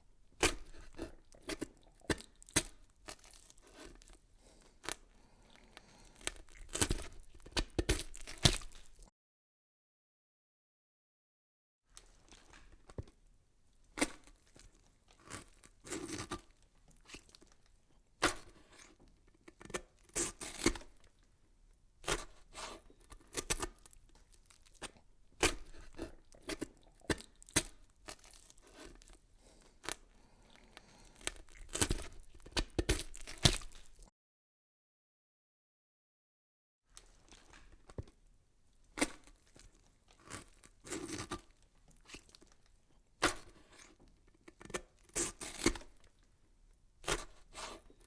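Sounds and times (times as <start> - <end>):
crinkling and tearing: 0.3 - 9.1, 22.1 - 34.1, 37.0 - 38.2, 38.8 - 46.3.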